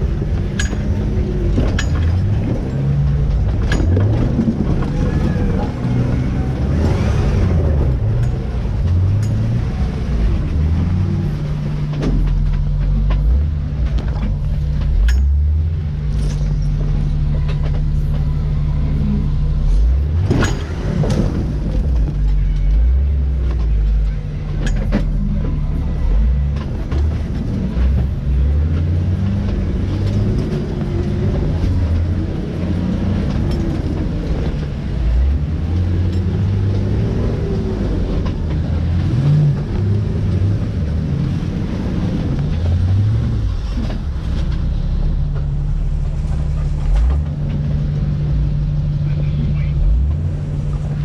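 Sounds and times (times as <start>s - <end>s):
engine revs rising and falling: 0.0s - 23.5s
steady low drone: 0.0s - 51.0s.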